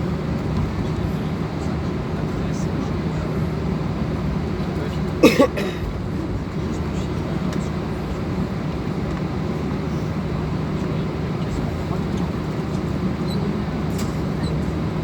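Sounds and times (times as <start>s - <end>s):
jet engines droning: 0.0s - 15.0s.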